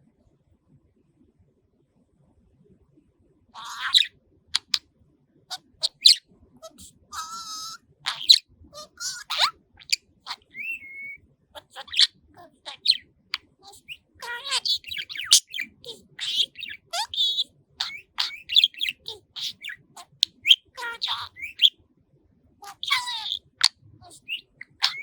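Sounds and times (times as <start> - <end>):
budgerigar chattering: 3.6 - 4.8, 5.5 - 21.7, 22.6 - 25.0.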